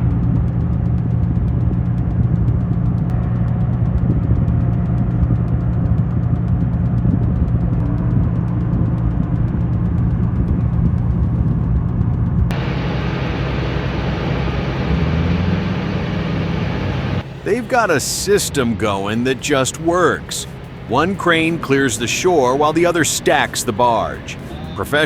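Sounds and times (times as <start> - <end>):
large engine droning: 0.0 - 25.0.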